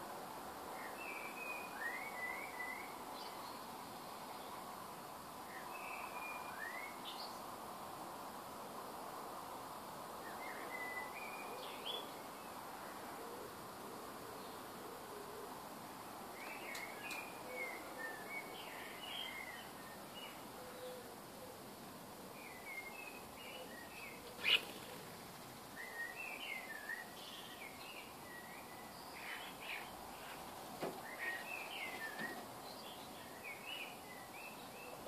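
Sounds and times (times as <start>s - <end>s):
background hiss: 0.0s - 35.0s
birds chirping and twittering: 16.4s - 21.6s, 22.3s - 35.0s.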